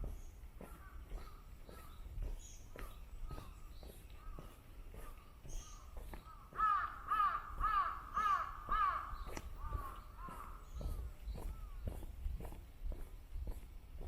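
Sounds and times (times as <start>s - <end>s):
walking footsteps: 0.0s - 14.0s
crow cawing: 0.7s - 2.0s, 4.2s - 11.8s.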